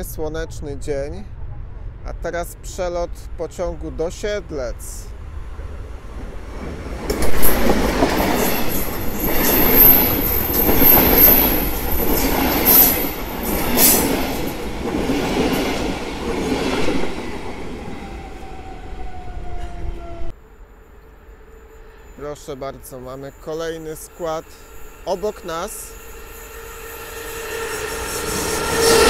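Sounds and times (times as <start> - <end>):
passenger train passing: 0.0 - 29.0
wheels clacking over rail joints: 6.2 - 17.9
wheels squealing: 6.6 - 17.1, 23.5 - 29.0.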